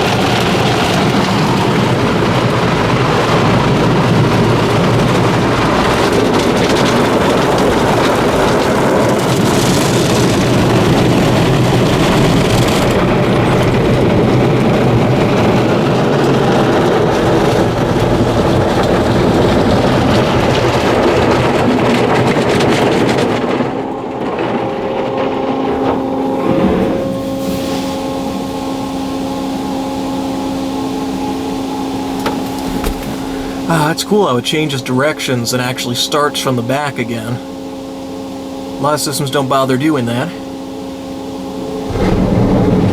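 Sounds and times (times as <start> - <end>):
steady motor hum: 0.0 - 42.9
car wash brushes scrubbing: 24.3 - 36.5.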